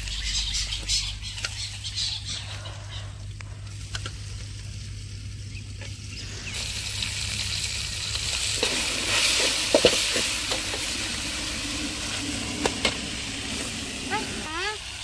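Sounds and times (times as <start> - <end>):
chicken sizzling in oil: 4.1 - 15.0.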